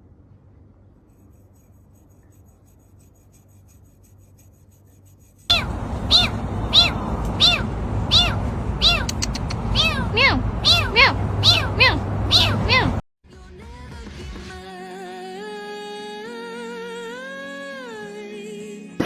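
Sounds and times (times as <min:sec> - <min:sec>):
cat meowing: 0:05.5 - 0:13.0
faint low hum: 0:05.5 - 0:13.0.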